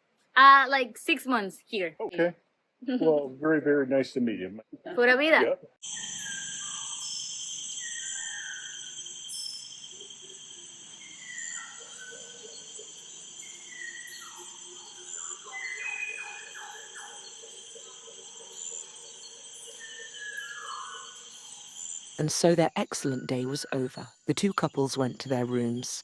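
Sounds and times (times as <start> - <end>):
birds calling: 5.8 - 26.0
insects shrilling: 5.8 - 26.0.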